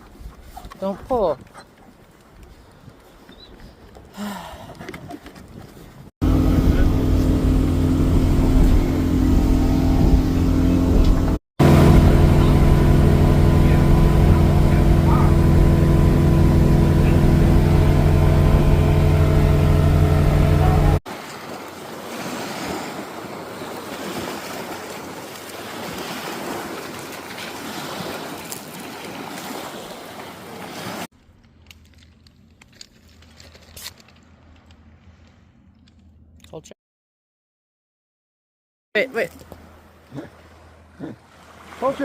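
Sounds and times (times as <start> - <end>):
rush of wind and water: 0.0 - 20.2, 20.9 - 31.1, 39.2 - 42.0
boat motor running: 6.2 - 21.0.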